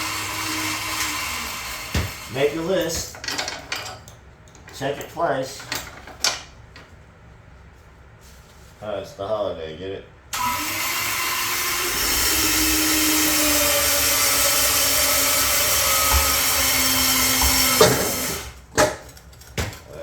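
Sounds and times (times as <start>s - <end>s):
power tool motor rushing: 0.0s - 2.3s, 10.4s - 18.6s.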